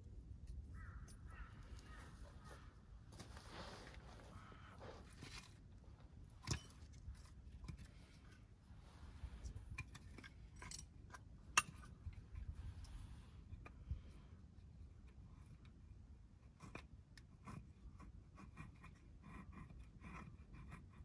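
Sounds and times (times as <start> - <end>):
clicks and knocks of objects handled: 5.0 - 8.5, 9.4 - 13.0.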